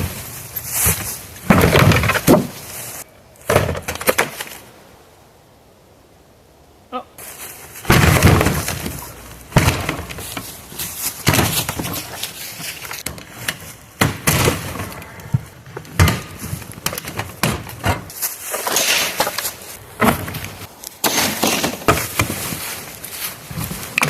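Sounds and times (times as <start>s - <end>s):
cracks bangs and rattles: 0.8s - 2.6s, 7.9s - 22.6s.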